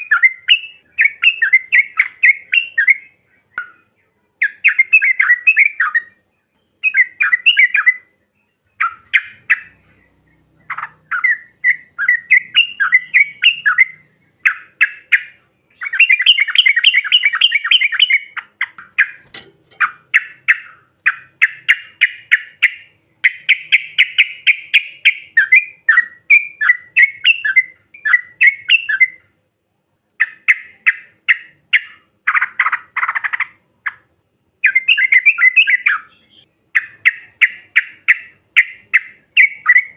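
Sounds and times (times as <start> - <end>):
bulbul bubbly chattering song: 8.8 - 29.2.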